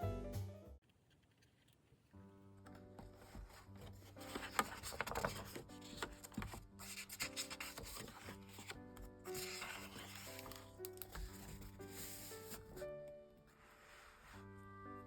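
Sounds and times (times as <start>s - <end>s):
quiet background music: 0.0s - 15.0s
paper rubbing and scratching: 3.0s - 12.8s.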